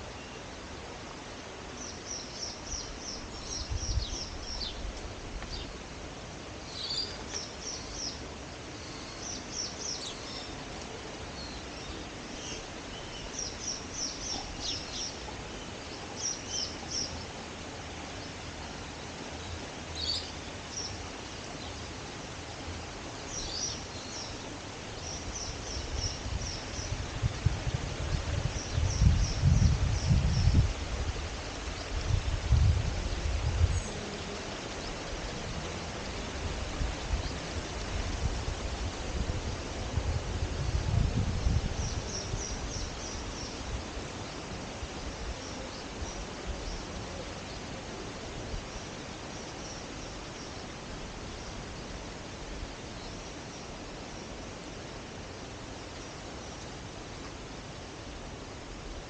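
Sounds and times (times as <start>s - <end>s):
outdoor hiss: 0.0s - 59.0s
small birds chirping: 1.7s - 5.8s, 6.6s - 38.3s
wind buffeting microphone: 3.4s - 5.7s, 25.3s - 44.1s.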